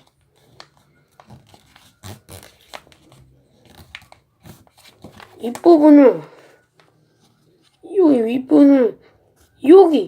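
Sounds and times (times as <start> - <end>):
paper rustling and crackling: 0.0 - 7.8.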